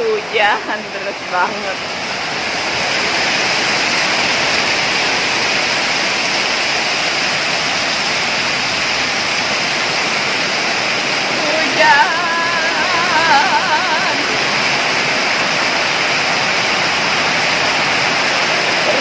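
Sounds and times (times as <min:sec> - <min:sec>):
person speaking: 0:00.0 - 0:01.8, 0:11.3 - 0:14.6
heavy rain: 0:00.0 - 0:19.0.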